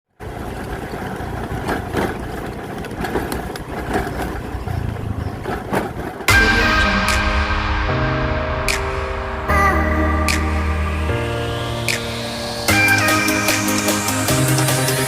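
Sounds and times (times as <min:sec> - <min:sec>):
engine running steadily: 0:00.1 - 0:06.6
music: 0:06.3 - 0:15.0.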